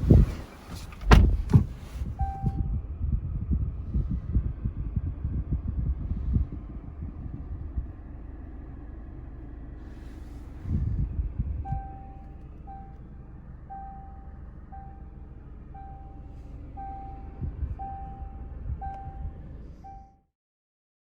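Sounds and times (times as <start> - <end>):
dull thumps: 0.0 - 1.9
engine and road rumble: 0.0 - 20.3
car warning chime beeping: 2.2 - 2.8, 11.6 - 20.3.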